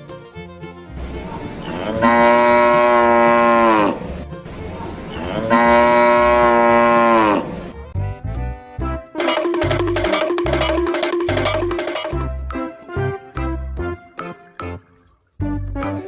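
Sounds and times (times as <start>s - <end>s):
cow mooing: 1.6s - 4.2s, 5.1s - 7.6s.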